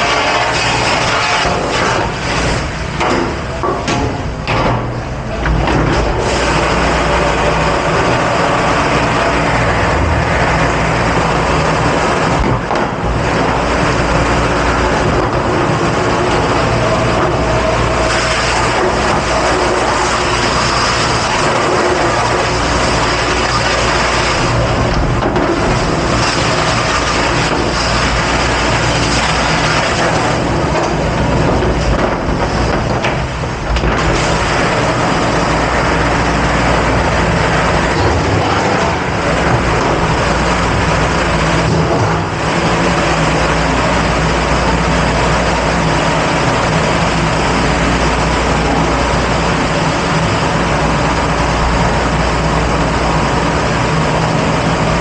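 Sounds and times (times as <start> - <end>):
dishwashing machine rushing: 0.0 - 55.0.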